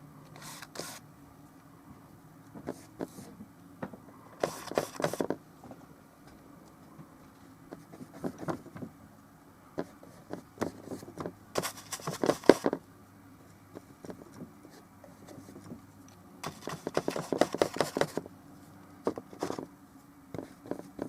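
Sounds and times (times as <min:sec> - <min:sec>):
paintbrush scratchy strokes: 0:00.4 - 0:01.0, 0:04.4 - 0:05.2
brush tapping: 0:09.8 - 0:12.8, 0:16.4 - 0:18.2.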